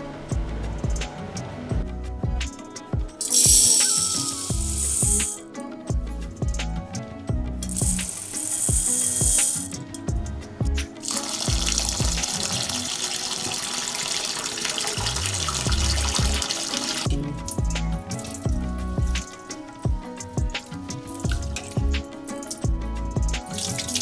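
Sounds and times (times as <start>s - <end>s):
background music with steady beat: 0.0s - 24.0s
water running from kitchen tap: 11.1s - 17.1s.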